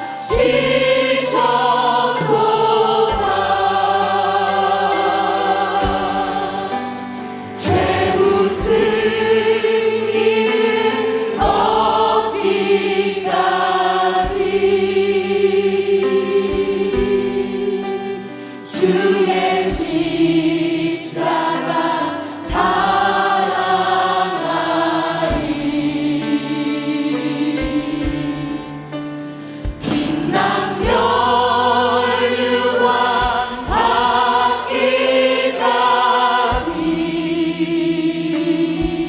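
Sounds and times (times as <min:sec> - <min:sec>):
choir singing a hymn: 0:00.0 - 0:39.0
instrumental accompaniment: 0:00.0 - 0:39.0
sharp percussive hits: 0:05.0 - 0:10.6.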